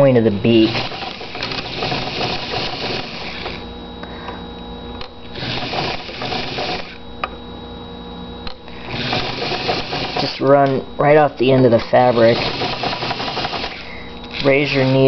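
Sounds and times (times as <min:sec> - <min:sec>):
electric sewing machine stitching: 0:00.5 - 0:03.6, 0:05.3 - 0:07.0, 0:08.8 - 0:10.4, 0:11.9 - 0:15.0.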